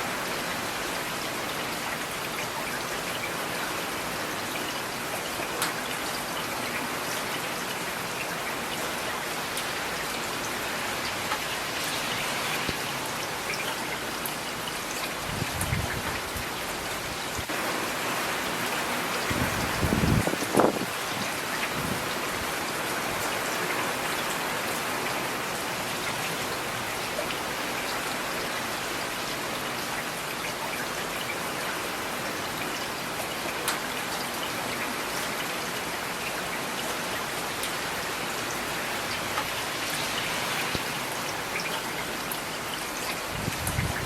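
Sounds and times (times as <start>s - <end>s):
steady rain falling: 0.0s - 44.0s.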